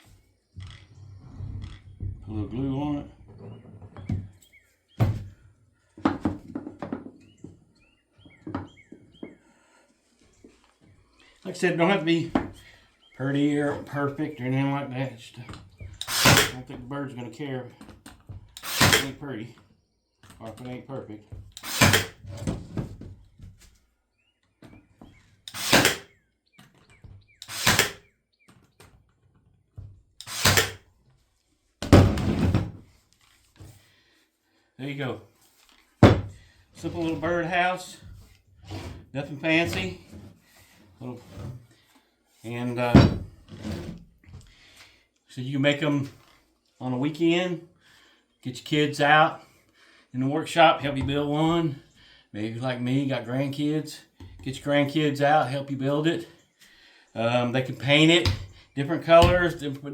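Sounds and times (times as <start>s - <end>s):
bird chirps: 3.4s - 5.1s, 7.2s - 9.5s.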